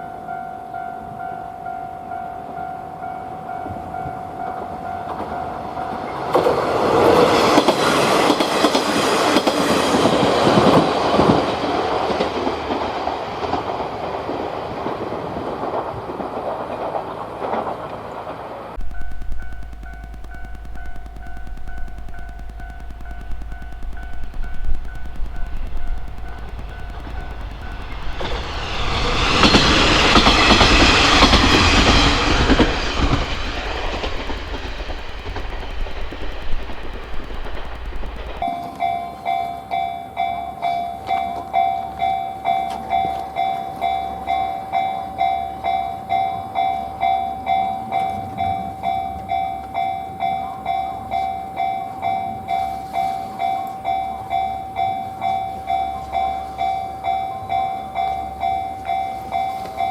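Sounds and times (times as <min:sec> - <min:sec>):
diesel railcar passing: 0:00.1 - 0:21.9, 0:22.6 - 0:59.9
level crossing alarm ringing: 0:18.8 - 0:59.9.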